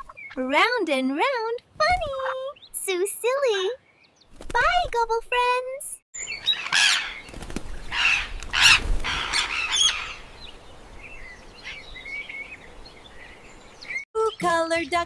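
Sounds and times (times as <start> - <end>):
faint bird chirping: 2.2 - 4.4, 9.2 - 15.0
bird wings flapping: 4.3 - 5.2, 6.7 - 10.1.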